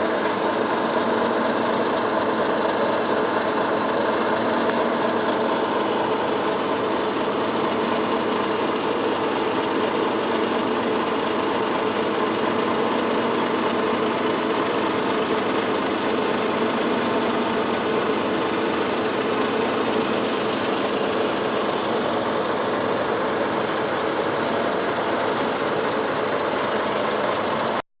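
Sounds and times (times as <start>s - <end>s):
heat pump running: 0.0s - 27.8s.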